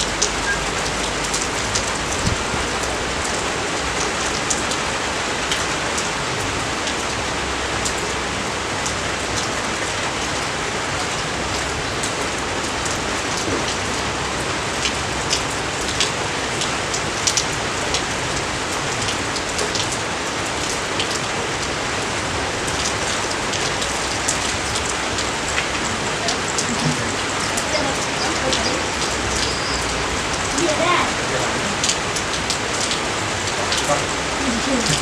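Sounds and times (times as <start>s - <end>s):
close raindrops ticking: 0.0s - 35.0s
rain falling: 0.0s - 35.0s.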